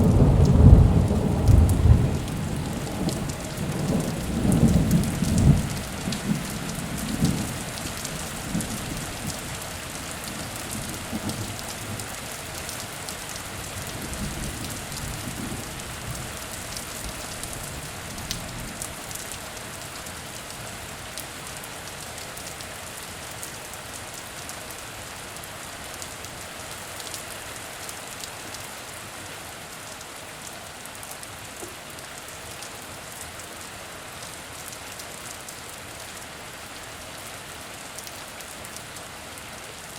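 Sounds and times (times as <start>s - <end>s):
thunder rumble: 0.0s - 7.6s
heavy rain falling: 0.0s - 39.9s.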